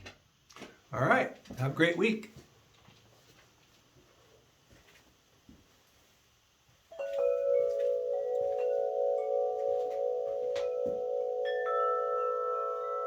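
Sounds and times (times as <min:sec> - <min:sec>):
chimes ringing: 0:06.9 - 0:13.0.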